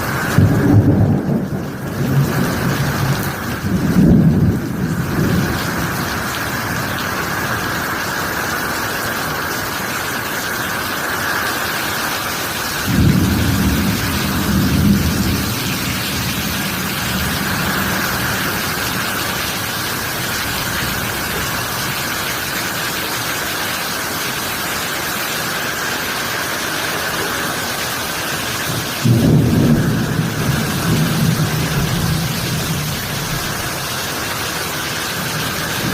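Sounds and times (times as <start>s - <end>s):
thunder rumbling: 0.0s - 8.4s, 12.6s - 22.5s, 28.6s - 35.9s
heavy rain pouring: 0.0s - 35.9s.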